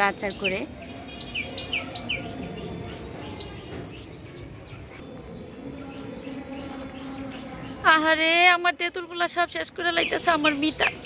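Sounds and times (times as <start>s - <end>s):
small bird chirping: 0.1s - 7.9s.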